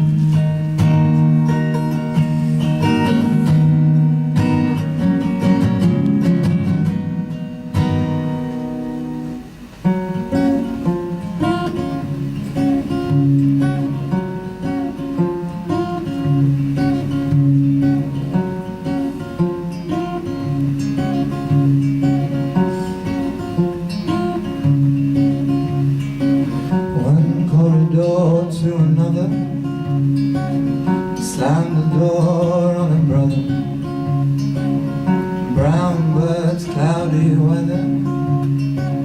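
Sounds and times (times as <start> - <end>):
solo acoustic guitar: 0.0 - 39.0.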